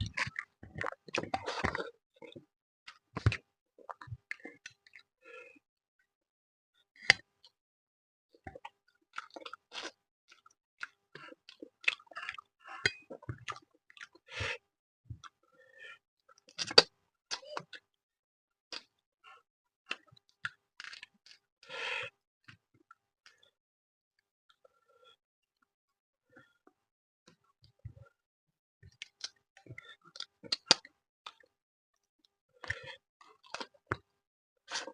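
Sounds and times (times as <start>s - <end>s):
person chewing with wet smacks: 0.1s - 2.4s, 8.5s - 14.2s.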